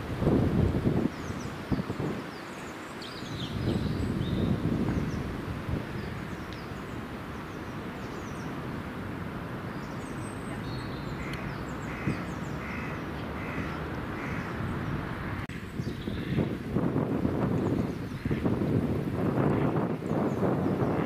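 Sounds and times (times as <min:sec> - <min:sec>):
wind: 0:00.0 - 0:21.0
small birds chirping: 0:01.0 - 0:08.7, 0:09.6 - 0:16.5
bird calling: 0:09.8 - 0:15.0.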